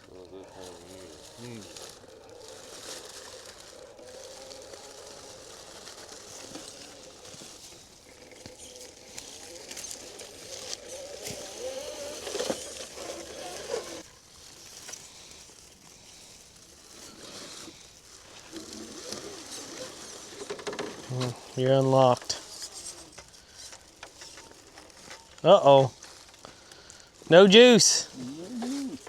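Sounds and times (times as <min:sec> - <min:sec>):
electric motor and gears whining: 0:00.0 - 0:14.1.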